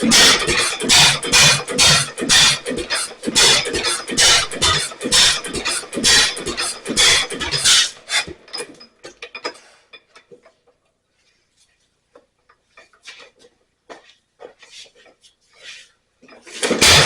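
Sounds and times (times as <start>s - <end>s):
stationary engine strokes: 0.0s - 8.4s.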